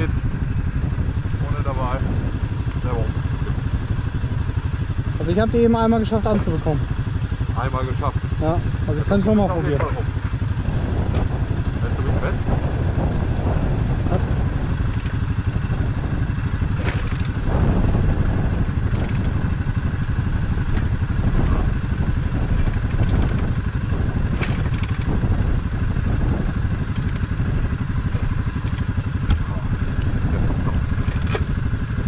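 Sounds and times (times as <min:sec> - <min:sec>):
off-road engine idling: 0:00.0 - 0:32.0
sharp click: 0:26.9 - 0:27.3.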